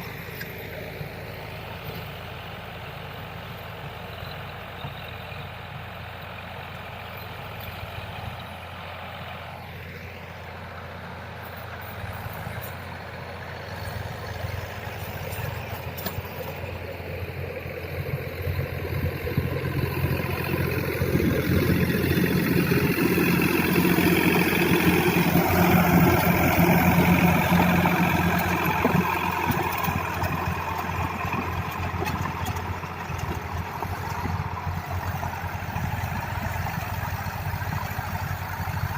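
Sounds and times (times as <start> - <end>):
diesel tractor engine with tiller: 0.0 - 38.9.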